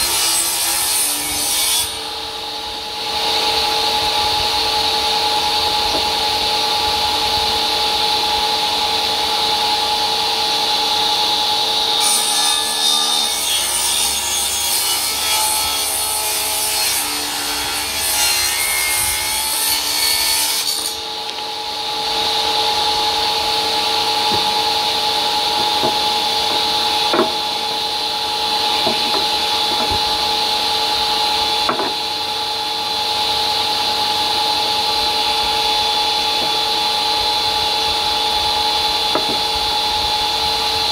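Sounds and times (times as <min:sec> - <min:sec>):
saw cutting wood: 0:00.0 - 0:02.4, 0:10.9 - 0:33.0
table saw whine: 0:00.0 - 0:40.9.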